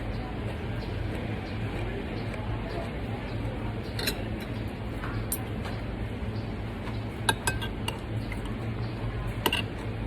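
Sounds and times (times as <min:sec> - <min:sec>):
tableware clinking: 0:03.9 - 0:04.5, 0:07.3 - 0:08.0, 0:09.4 - 0:09.8.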